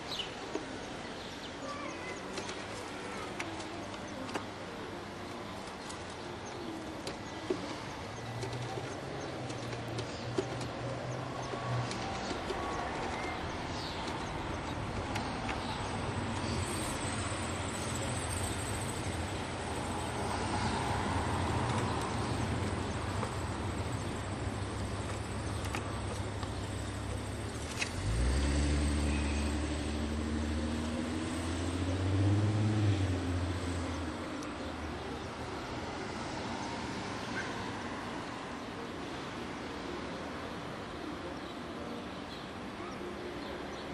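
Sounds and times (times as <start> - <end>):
low outdoor hum: 1.6 - 37.5
vehicle engine revving: 24.4 - 34.1.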